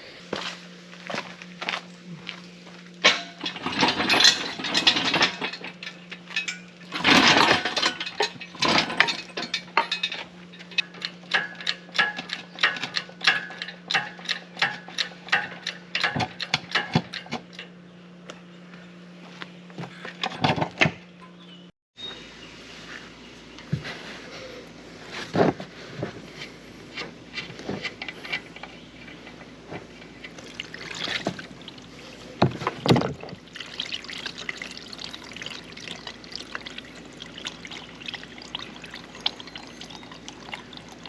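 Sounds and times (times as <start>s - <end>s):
low mechanical hum: 0.0s - 41.0s
hand tools clicking and clanking: 3.0s - 17.7s, 26.4s - 34.5s.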